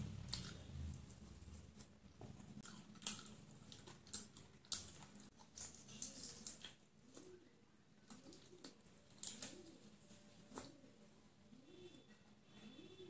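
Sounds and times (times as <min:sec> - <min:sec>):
chewing crispy food: 0:00.2 - 0:07.4, 0:08.0 - 0:09.9.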